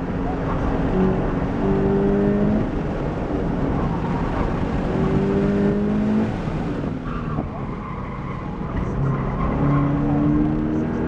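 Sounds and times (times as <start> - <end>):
car engine accelerating: 0.0 - 11.0
road rumble: 0.0 - 11.0.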